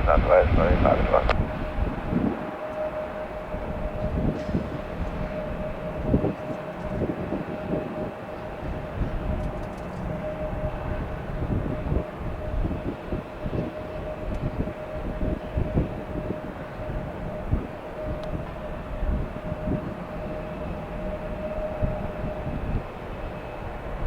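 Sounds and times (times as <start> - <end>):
wind thumps on microphone: 0.0 - 2.5
jet engine rumble: 0.0 - 24.0.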